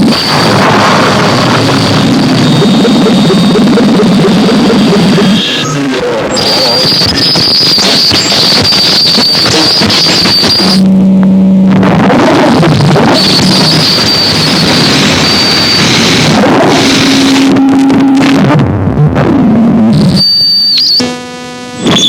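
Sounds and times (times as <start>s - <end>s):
distorted noise wall: 0.0s - 22.0s
high whine: 0.0s - 22.0s
low droning tones: 0.0s - 22.0s.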